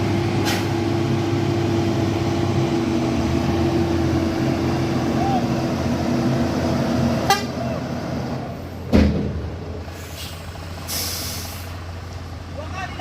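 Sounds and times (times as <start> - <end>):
truck engine running: 0.0 - 13.0
heavy thump: 8.9 - 9.5.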